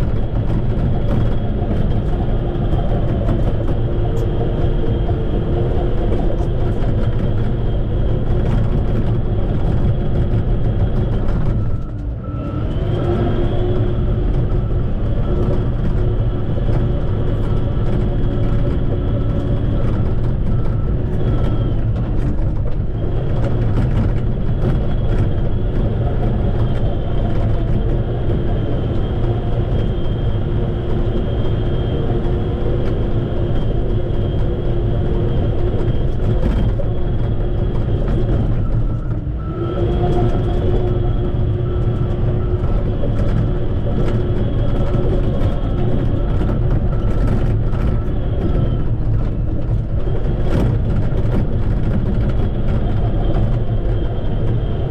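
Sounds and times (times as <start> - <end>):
bulldozer diesel engine whining: 0.0 - 54.9.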